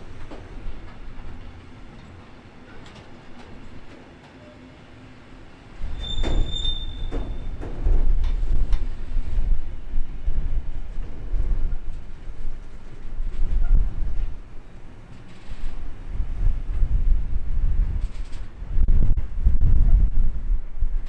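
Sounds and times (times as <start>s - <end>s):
freight train rumbling past: 0.0s - 21.0s
high-pitched wheel squeal: 5.9s - 7.6s.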